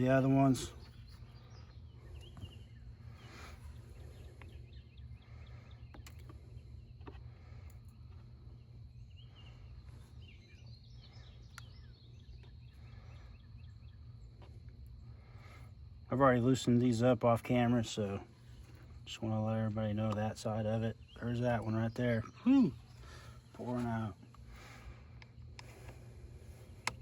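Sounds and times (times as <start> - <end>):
distant bird chirps: 0.0 - 27.0
steady low hum: 0.0 - 27.0
sharp light clicks: 26.8 - 27.0.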